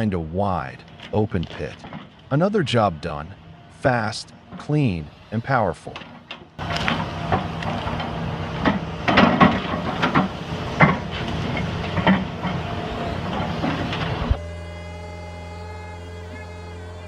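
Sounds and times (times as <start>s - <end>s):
excavator engine under load: 0.0s - 17.0s
steady hum: 0.2s - 17.0s.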